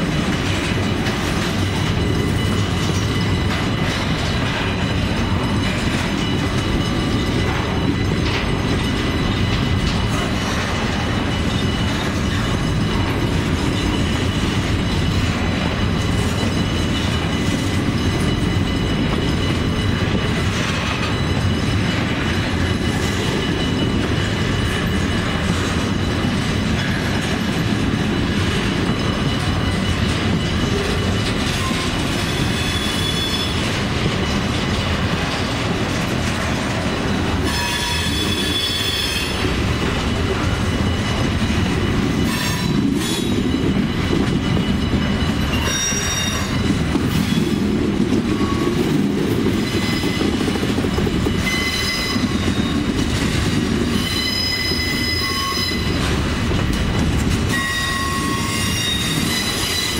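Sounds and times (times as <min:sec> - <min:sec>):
rail joint clacks: 0:00.0 - 0:59.9
steel wheels rumbling on rails: 0:00.0 - 0:59.9
high wheel squeal: 0:28.9 - 0:34.3, 0:37.4 - 0:47.7, 0:51.2 - 0:52.9, 0:53.9 - 0:56.1, 0:57.5 - 0:59.9.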